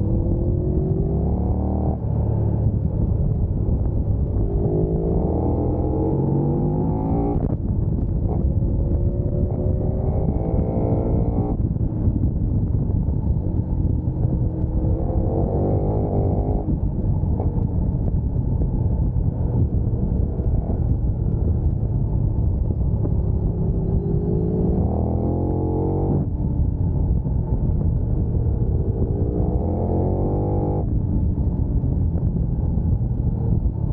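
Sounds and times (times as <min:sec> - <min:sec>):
motorcycle engine revving: 0:00.0 - 0:02.7, 0:04.2 - 0:07.6, 0:08.3 - 0:11.7, 0:13.6 - 0:17.7, 0:22.9 - 0:26.3, 0:28.2 - 0:31.4
low rumble: 0:00.0 - 0:33.9.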